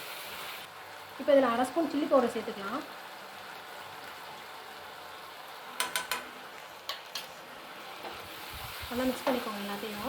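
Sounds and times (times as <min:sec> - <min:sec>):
vegetables sizzling in a frying pan: 0:00.0 - 0:10.0
utensil clinking against pan: 0:05.8 - 0:06.3.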